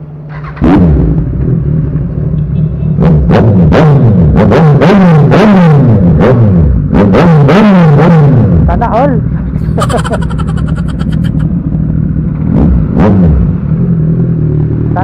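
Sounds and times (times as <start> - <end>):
motorcycle engine revving: 0.3 - 1.9.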